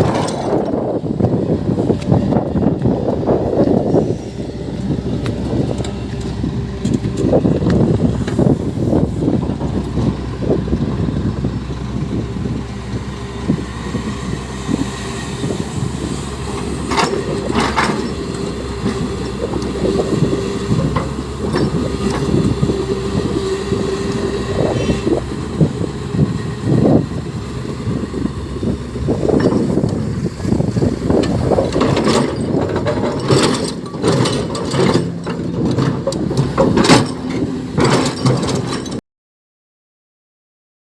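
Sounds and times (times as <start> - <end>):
excavator engine and hydraulics: 0.0 - 39.0
hydraulic whine: 0.0 - 39.0
knocks and clanks: 16.5 - 23.5, 31.2 - 39.0
metal clatter: 31.2 - 39.0.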